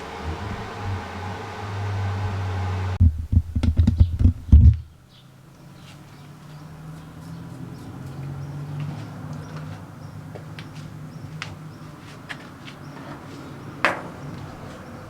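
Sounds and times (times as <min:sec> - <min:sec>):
machine hum: 0:00.0 - 0:04.8
faint low hum: 0:00.0 - 0:05.0
irregular clicks and knocks: 0:03.0 - 0:04.9.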